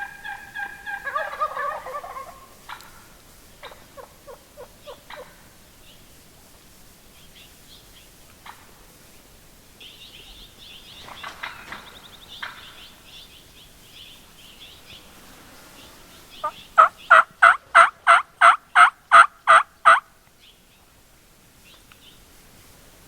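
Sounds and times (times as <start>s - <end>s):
turkey yelping: 0.0s - 5.4s, 16.4s - 20.1s
soft turkey call: 0.0s - 5.5s, 16.4s - 20.1s
faint songbird chirping: 0.0s - 22.4s.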